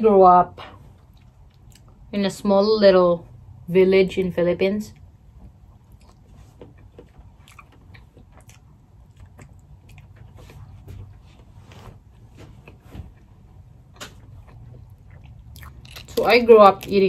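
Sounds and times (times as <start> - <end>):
low steady hum: 0.0 - 17.0
wet chewing and lip smacks: 0.9 - 2.1, 4.9 - 11.2, 12.6 - 16.2.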